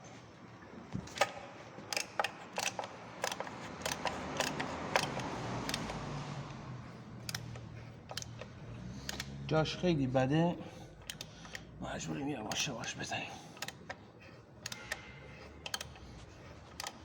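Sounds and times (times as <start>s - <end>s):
hand tools clicking on metal: 1.1s - 6.2s, 7.2s - 9.5s, 10.9s - 17.0s.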